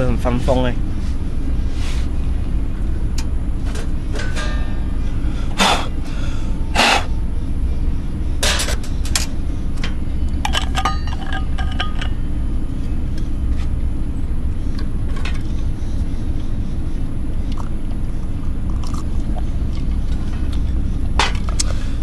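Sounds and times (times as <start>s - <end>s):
metallic clinks: 10.4s - 12.3s.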